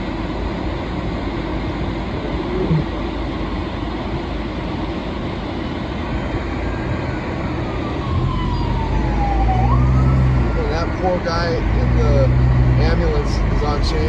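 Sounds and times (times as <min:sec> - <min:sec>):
engine and road noise: 0:00.0 - 0:14.0
ambulance siren wailing: 0:06.8 - 0:13.3.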